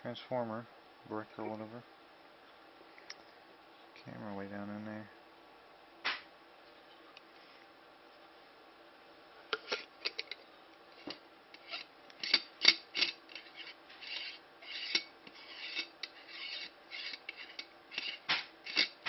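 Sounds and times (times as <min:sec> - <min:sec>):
short scraping rubs: 0:13.0 - 0:19.0.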